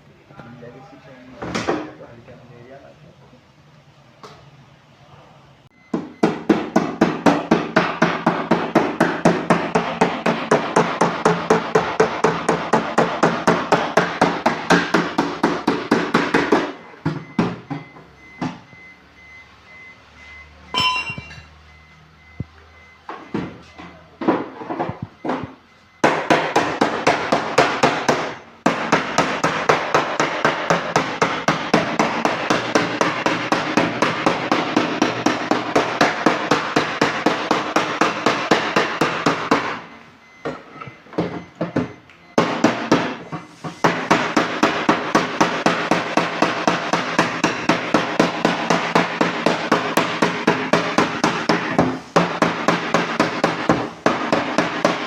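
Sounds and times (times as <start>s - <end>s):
hammer striking sheet metal: 6.2s - 17.4s, 20.8s - 21.4s, 42.4s - 55.0s.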